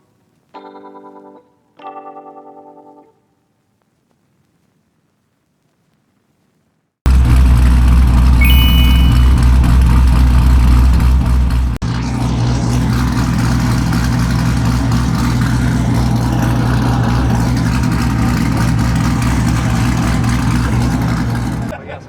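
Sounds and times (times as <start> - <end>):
car engine rumbling: 9.3 - 21.7.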